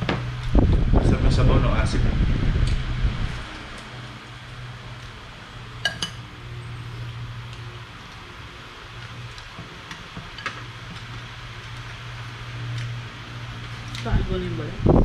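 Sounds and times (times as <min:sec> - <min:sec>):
low fan hum: 0:00.0 - 0:15.0
cutlery clinking on dishes: 0:05.8 - 0:06.2.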